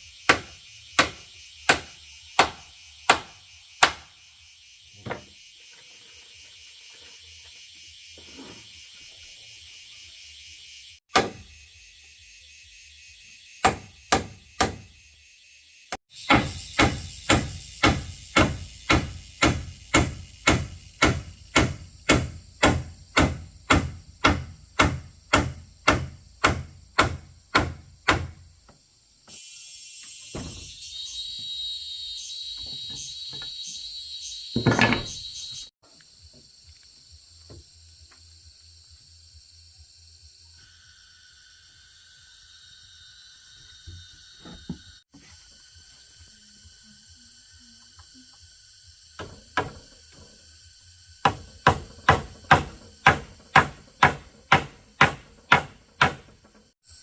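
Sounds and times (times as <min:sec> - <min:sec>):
insects buzzing faintly: 0:00.0 - 0:57.0
hammer striking wood: 0:00.3 - 0:04.1, 0:11.1 - 0:11.5, 0:13.6 - 0:14.9, 0:16.3 - 0:28.4, 0:49.2 - 0:49.9, 0:51.2 - 0:56.4.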